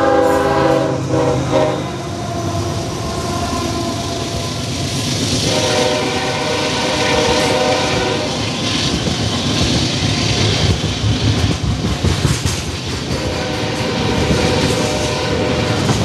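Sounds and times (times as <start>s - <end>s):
freight train rumbling past: 0.0s - 16.0s
wheels clacking over rail joints: 7.3s - 16.0s.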